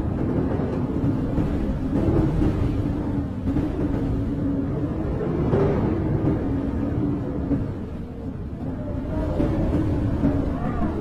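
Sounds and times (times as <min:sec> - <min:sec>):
blizzard wind howling: 0:00.0 - 0:11.0.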